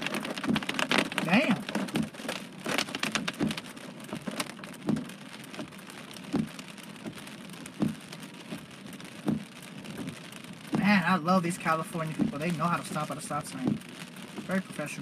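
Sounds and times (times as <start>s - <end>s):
heavy rain hissing: 0.0s - 15.0s
raindrops tapping a surface: 0.0s - 15.0s.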